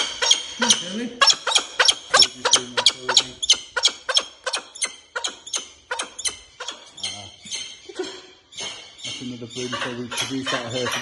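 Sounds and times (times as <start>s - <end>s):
falcon harsh repeated calls: 0.0s - 6.9s.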